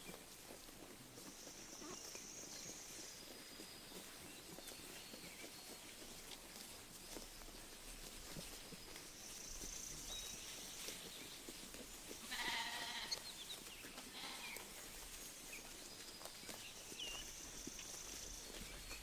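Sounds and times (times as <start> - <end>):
birds chirping: 1.2 - 6.3, 8.6 - 19.0
sheep bleating: 12.2 - 13.2, 14.1 - 14.7.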